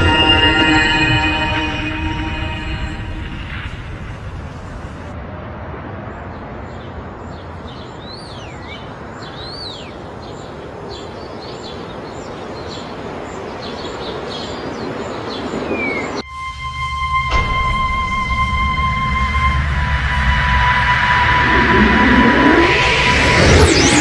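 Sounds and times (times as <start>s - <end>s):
held musical tones: 0.0s - 4.4s
outdoor background noise: 0.0s - 24.0s
birds chirping: 6.1s - 16.2s.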